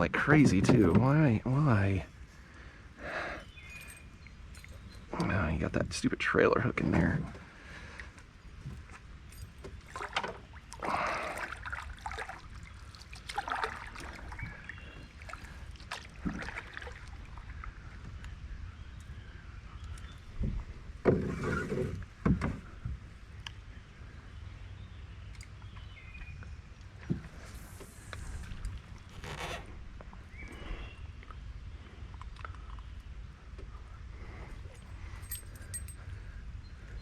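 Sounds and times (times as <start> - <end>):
knocks in a canoe: 0.2 - 1.2, 20.4 - 23.0
rustling of gear: 27.4 - 29.8.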